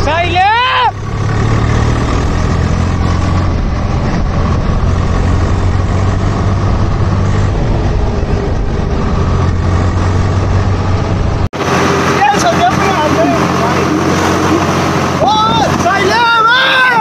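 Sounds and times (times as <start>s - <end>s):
tractor diesel engine humming: 0.0s - 17.0s.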